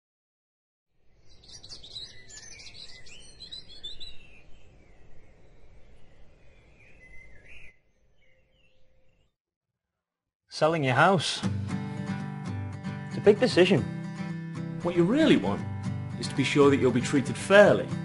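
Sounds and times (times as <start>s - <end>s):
songbirds chirping and warbling: 1.0s - 9.4s, 16.2s - 18.0s.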